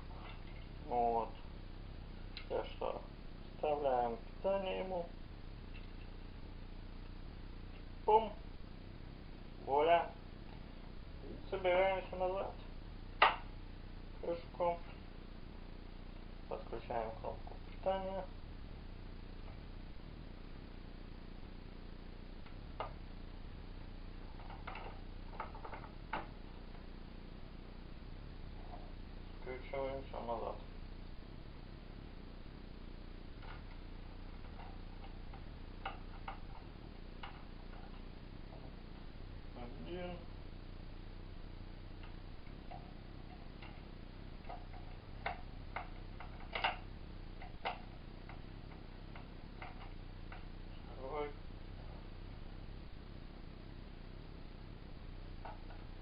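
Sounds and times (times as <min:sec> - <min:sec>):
steady low hum: 0:00.0 - 0:56.0
screwdriver clicks and ticks: 0:33.4 - 0:38.0, 0:42.0 - 0:50.5.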